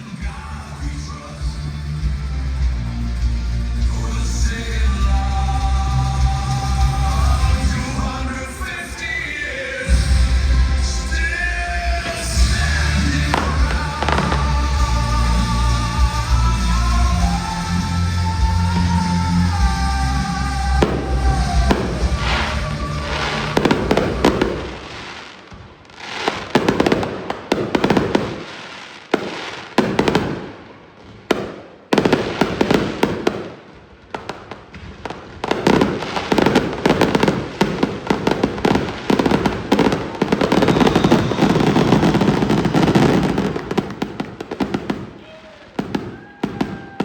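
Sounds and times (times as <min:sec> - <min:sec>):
music: 0:00.0 - 0:25.4, 0:35.6 - 0:37.4, 0:38.1 - 0:44.9
fireworks bangs and crackles: 0:00.0 - 0:47.0.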